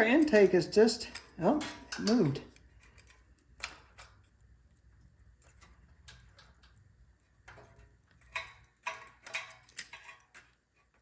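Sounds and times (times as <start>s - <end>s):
light metallic clicks and taps: 0.0s - 4.4s.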